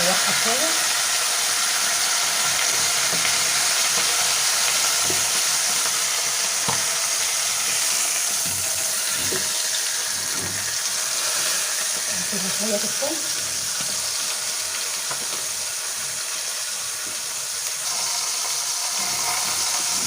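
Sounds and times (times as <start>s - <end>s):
duck sizzling in hot fat: 0.0s - 20.0s.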